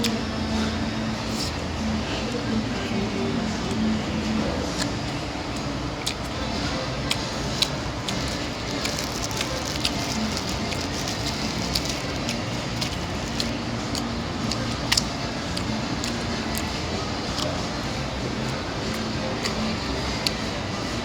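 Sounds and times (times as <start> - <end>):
chewing and lip-smacking: 0.0 - 21.0
steady background noise: 0.0 - 21.0
wet mouth clicks: 4.6 - 20.8.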